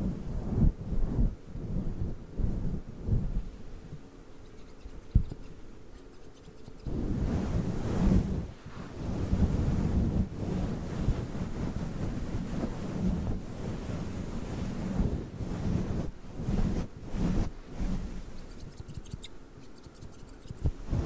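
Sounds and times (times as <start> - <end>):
windscreen rubbing on microphone: 0.0 - 21.0.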